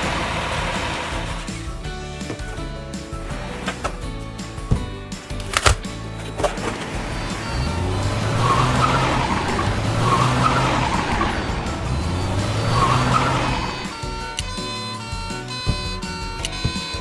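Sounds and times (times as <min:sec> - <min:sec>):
car engine running: 0:00.0 - 0:05.4, 0:06.0 - 0:16.8
tires squealing: 0:06.1 - 0:17.0.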